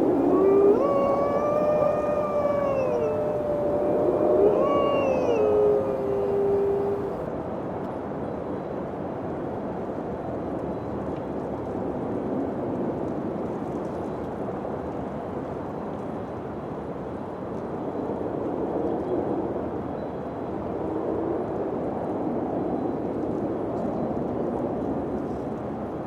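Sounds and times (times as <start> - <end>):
wind blowing: 0.0 - 7.2.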